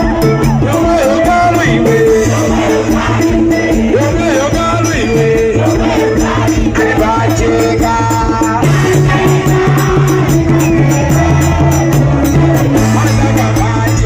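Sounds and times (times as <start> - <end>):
shaker beat: 0.0 - 14.0
steady bass line: 0.0 - 14.0.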